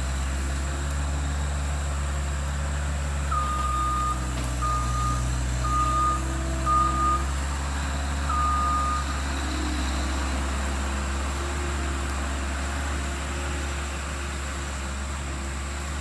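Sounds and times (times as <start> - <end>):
diesel engine running: 0.0 - 16.0
backup alarm beeping: 3.3 - 7.3, 8.3 - 9.1.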